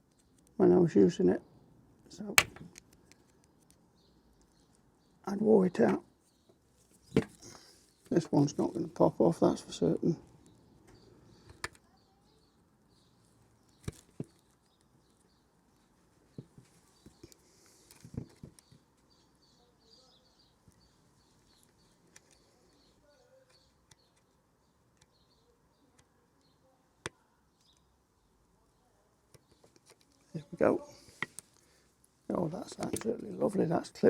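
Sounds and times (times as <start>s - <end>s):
plastic parts clicking together: 2.4s - 3.8s
faint bird chirps: 6.1s - 33.7s.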